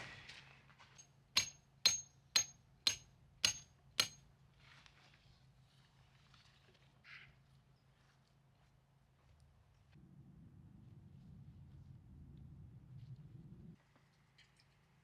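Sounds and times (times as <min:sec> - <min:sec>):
hammer blows on metal stake: 0:01.4 - 0:04.2.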